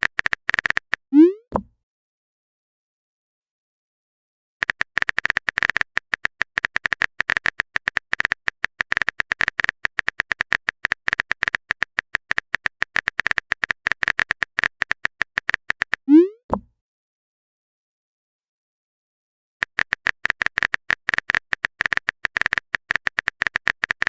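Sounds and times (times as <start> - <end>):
keyboard typing clicks: 0.0 - 1.7, 4.6 - 16.7, 19.6 - 24.0.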